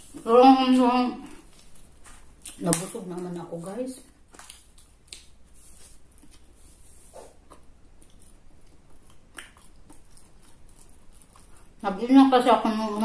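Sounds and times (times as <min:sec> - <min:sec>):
person chewing: 0:04.2 - 0:11.8.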